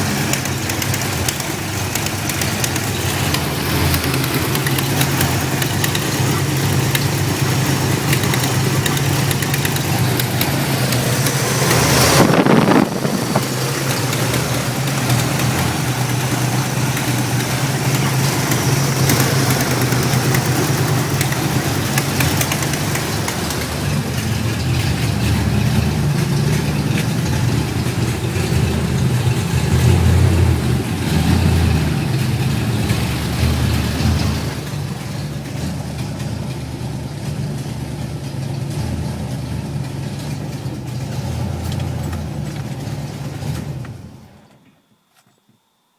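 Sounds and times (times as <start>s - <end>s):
engine idling roughly: 0.0s - 44.5s.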